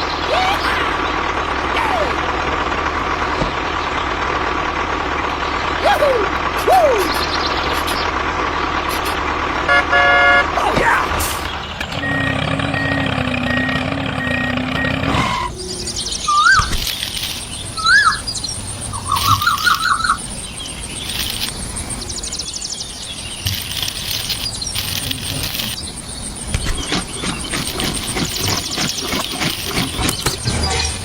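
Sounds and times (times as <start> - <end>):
birds chirping: 0.0 - 31.0
steady low hum: 11.4 - 31.0.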